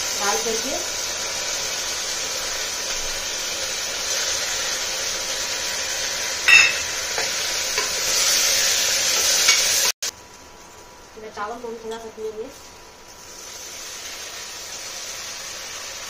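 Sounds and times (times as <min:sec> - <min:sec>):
food sizzling in hot fat: 0:00.0 - 0:16.0
metal clink: 0:06.5 - 0:06.9.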